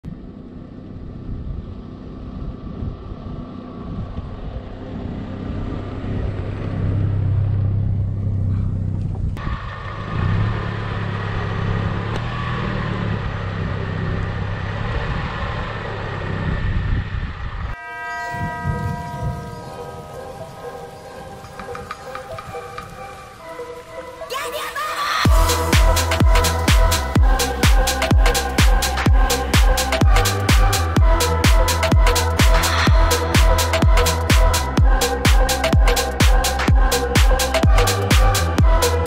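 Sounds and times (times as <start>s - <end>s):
car engine through loud exhaust: 0.0s - 23.5s, 25.3s - 39.0s
steady higher tones: 17.7s - 39.0s.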